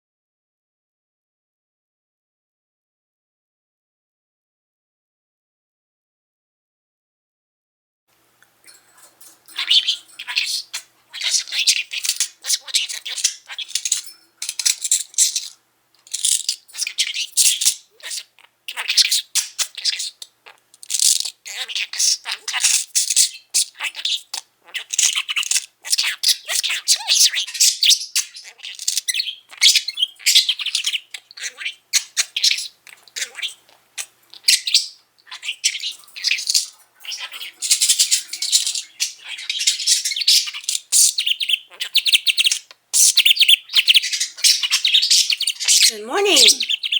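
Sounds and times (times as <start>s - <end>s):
budgerigar chattering and warbling: 9.5s - 46.9s.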